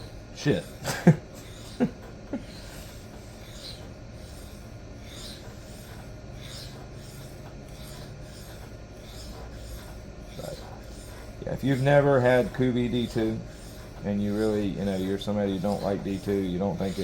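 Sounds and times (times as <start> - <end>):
knife scraping on sharpening stone: 2.5 - 12.5.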